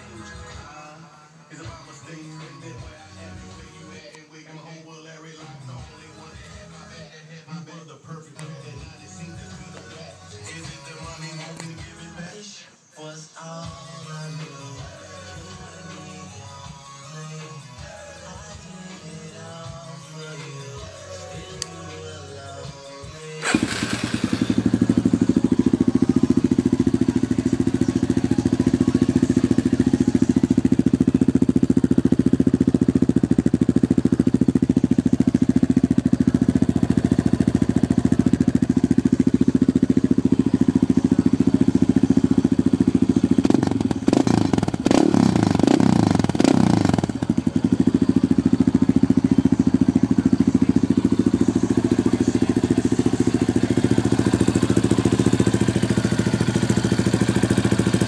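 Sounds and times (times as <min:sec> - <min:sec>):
quad engine idling and revving: 0:00.0 - 0:00.6, 0:23.4 - 0:58.0.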